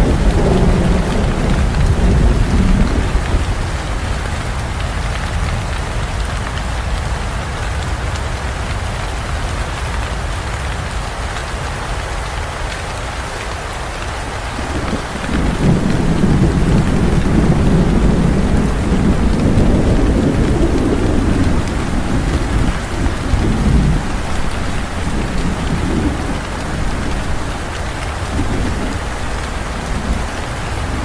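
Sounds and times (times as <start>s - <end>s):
low roll of thunder: 0.0s - 4.8s, 14.3s - 31.0s
heavy rain falling: 0.0s - 31.0s.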